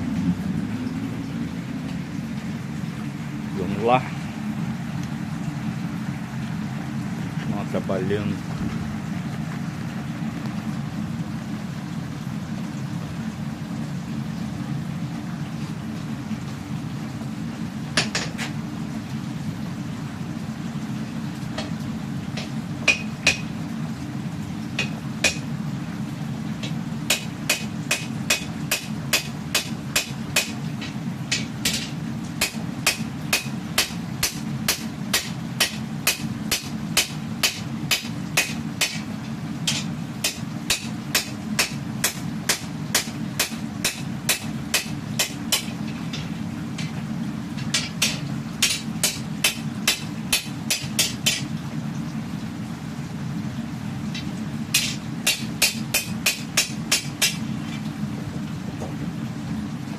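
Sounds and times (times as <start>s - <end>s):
steady low hum: 0.0s - 59.9s
hammer striking steel on anvil: 22.4s - 23.5s, 24.8s - 25.4s, 27.1s - 30.6s, 31.3s - 39.0s, 39.7s - 46.9s, 47.7s - 51.5s, 54.7s - 57.4s.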